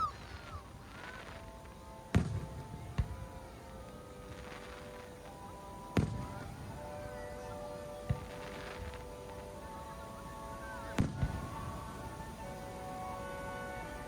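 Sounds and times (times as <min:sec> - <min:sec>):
fireworks bangs with rumbling tail: 0:00.0 - 0:03.3, 0:05.9 - 0:06.9, 0:08.0 - 0:09.1, 0:11.0 - 0:11.8
music with long held notes: 0:00.2 - 0:14.0.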